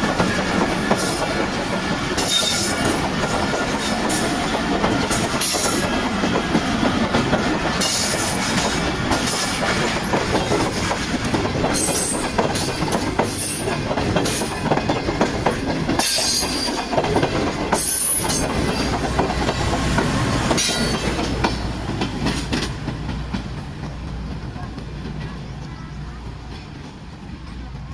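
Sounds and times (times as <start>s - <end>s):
train wheels clattering: 0.0s - 27.9s
train wheel squeals: 2.2s - 3.1s, 11.7s - 14.6s, 15.9s - 19.0s, 20.5s - 21.3s.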